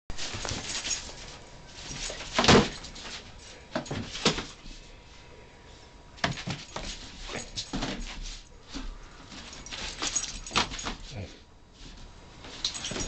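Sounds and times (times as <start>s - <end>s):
puppy knocks and scuffles: 0.2s - 4.6s, 6.2s - 11.0s.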